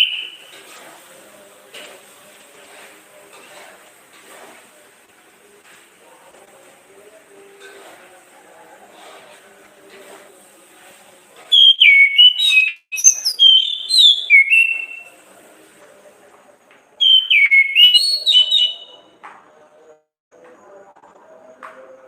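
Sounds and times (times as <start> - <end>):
thrush singing whistled notes: 0.0 - 0.5, 11.5 - 15.2, 17.0 - 19.0.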